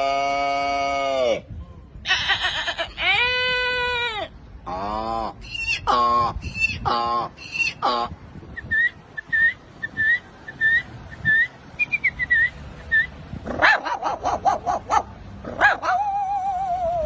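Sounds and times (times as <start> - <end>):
man imitating a dog: 0.0 - 1.5, 15.8 - 17.0.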